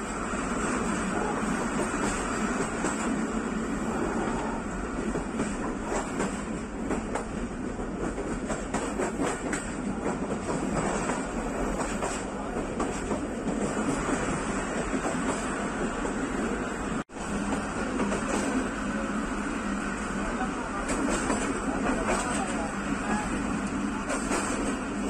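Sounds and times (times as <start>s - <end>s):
train wheels rumbling on rail: 0.0s - 25.0s
clatter over rail joints: 24.1s - 24.8s.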